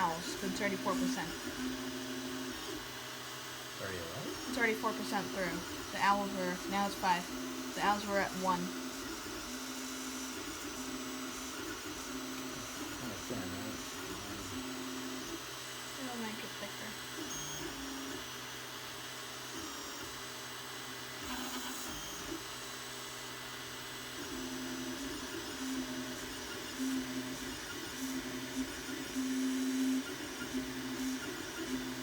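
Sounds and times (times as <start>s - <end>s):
stepper motors whining: 3.8s - 18.2s.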